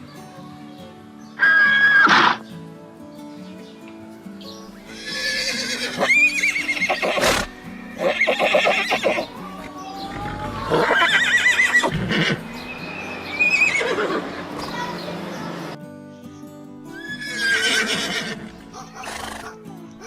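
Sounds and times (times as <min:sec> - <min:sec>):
background music: 0:00.0 - 0:20.0
horse neighing: 0:01.4 - 0:02.4, 0:04.9 - 0:12.4, 0:13.4 - 0:14.2, 0:17.0 - 0:19.6.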